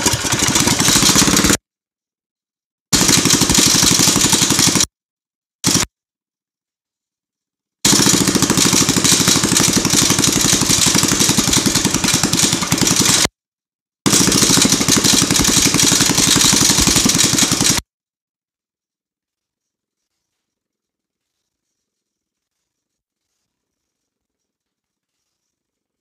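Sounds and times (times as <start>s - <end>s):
mini bike engine running loud: 0.0s - 1.6s, 3.0s - 4.9s, 5.6s - 5.9s, 7.9s - 13.3s, 14.1s - 17.8s.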